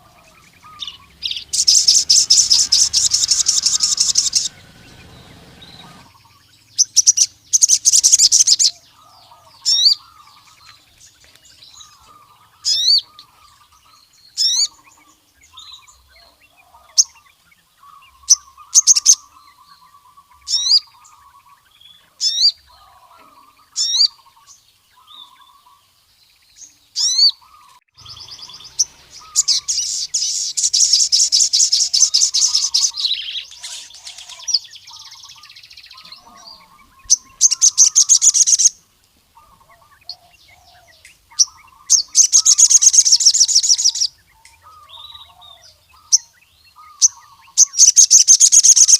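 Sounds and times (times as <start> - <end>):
bird buzzing trill: 0.0 - 8.7, 28.0 - 34.5, 36.0 - 38.8
bird singing sharp high notes: 0.0 - 8.7, 27.0 - 38.8, 41.4 - 45.4
soft low bird chirps: 0.0 - 38.8.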